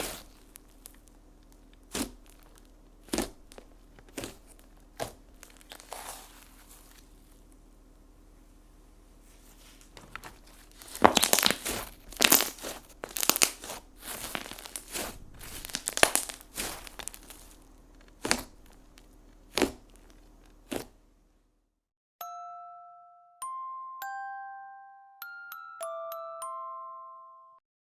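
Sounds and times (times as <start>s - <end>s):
slime squelching and crackling: 0.0s - 7.6s, 9.4s - 21.0s
slime pops: 10.8s - 17.6s, 18.2s - 20.9s
ringing chime note: 22.2s - 27.6s.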